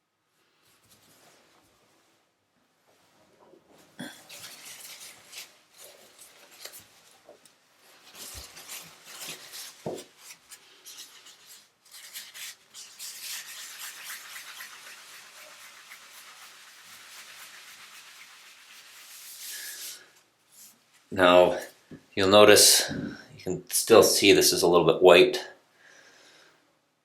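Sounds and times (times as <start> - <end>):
hand rubbing polish: 8.0 - 21.8.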